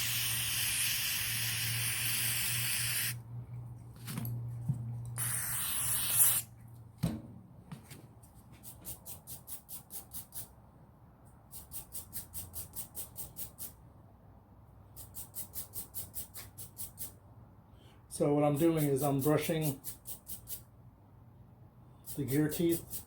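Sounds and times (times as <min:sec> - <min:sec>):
aerosol spray hissing: 0:00.0 - 0:03.2, 0:05.2 - 0:06.5
brush scrubbing ratchet gear: 0:22.0 - 0:23.0.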